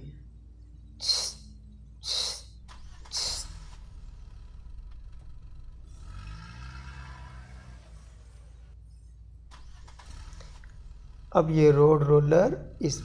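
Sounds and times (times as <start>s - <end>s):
oil hissing from nozzle: 1.0s - 3.8s
engine starting with low hum: 2.1s - 8.8s, 9.4s - 13.0s.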